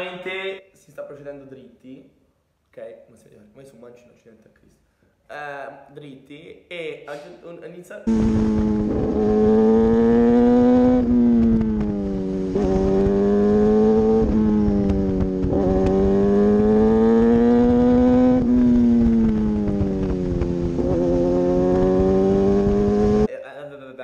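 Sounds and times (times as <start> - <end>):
wind rush on microphone: 8.1 - 9.7, 10.4 - 16.4, 17.4 - 22.0
motorcycle engine running: 8.1 - 23.3.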